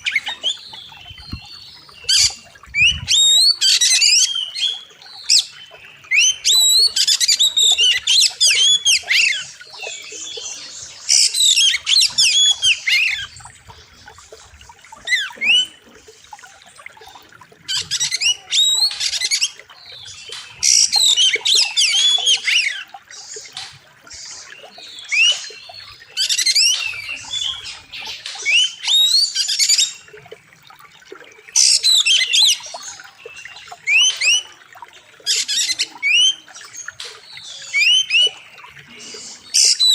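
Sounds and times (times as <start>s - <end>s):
bird singing whistled phrases: 0.0s - 13.3s, 17.7s - 19.5s, 35.3s - 36.6s.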